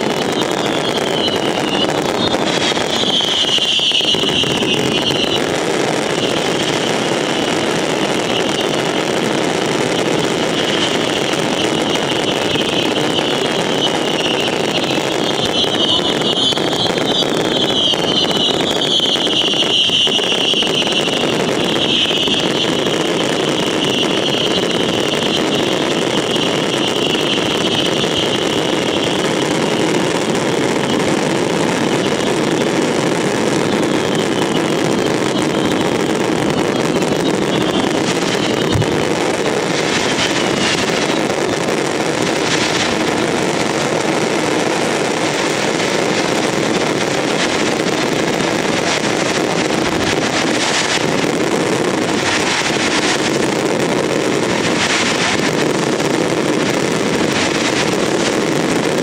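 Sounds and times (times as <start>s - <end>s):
fireworks launching and bursting: 0.0s - 59.0s
sharp firework cracks: 0.0s - 59.0s.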